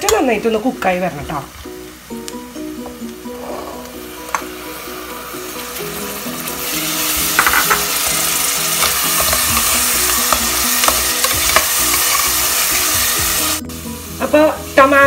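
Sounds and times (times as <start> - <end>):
masala sizzling in a pot: 0.0 - 15.0
spoon clicking against pot: 8.8 - 12.2.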